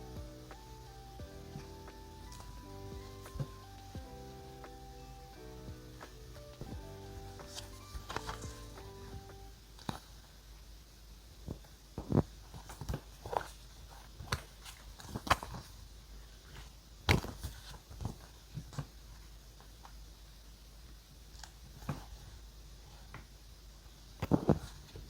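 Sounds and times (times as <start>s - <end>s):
paper crinkling: 7.4s - 8.8s.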